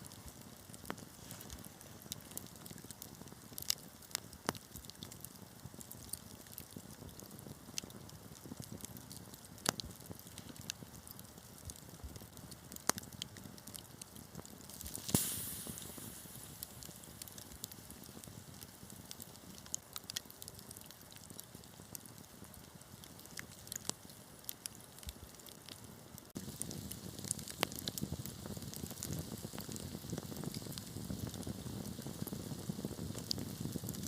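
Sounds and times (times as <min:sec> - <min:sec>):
wood fire crackling: 0:00.0 - 0:34.0
brief hiss: 0:14.9 - 0:16.7.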